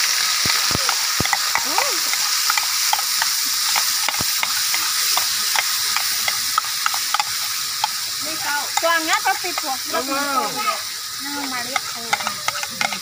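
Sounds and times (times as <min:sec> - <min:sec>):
paste sizzling in hot oil: 0:00.0 - 0:13.0
wooden spatula scraping wok: 0:11.2 - 0:13.0.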